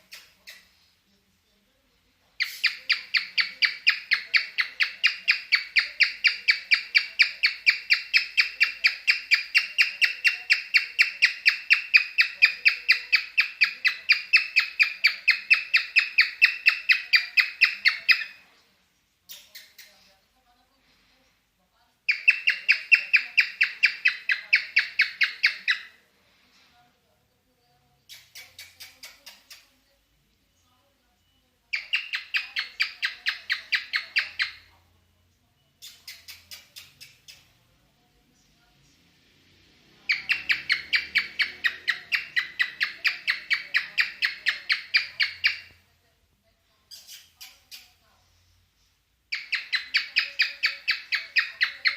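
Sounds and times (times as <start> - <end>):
cockatiel chirping: 2.4 - 18.4, 22.1 - 26.0, 31.7 - 34.7, 40.1 - 45.8, 46.9 - 48.0, 49.3 - 51.9.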